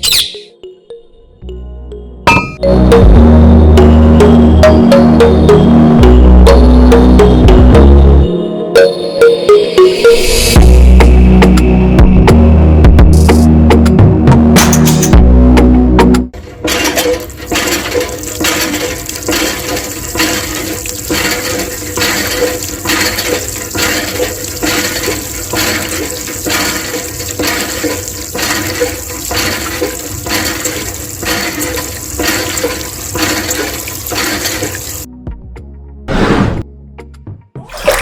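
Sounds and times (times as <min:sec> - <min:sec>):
hand water pump gushing water: 0:16.4 - 0:35.1, 0:37.7 - 0:38.0.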